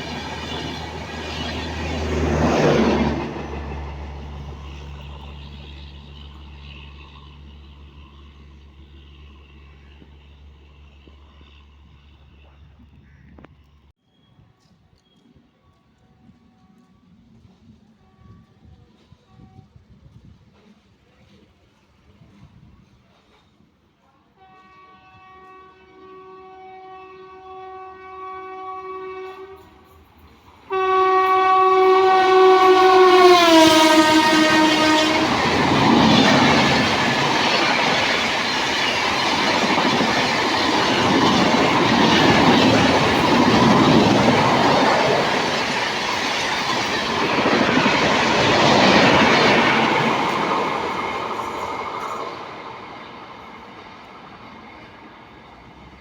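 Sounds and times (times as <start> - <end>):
train rumbling past: 0.0 - 13.9, 15.5 - 56.0
locomotive horn blasts: 24.4 - 29.8, 30.7 - 35.8.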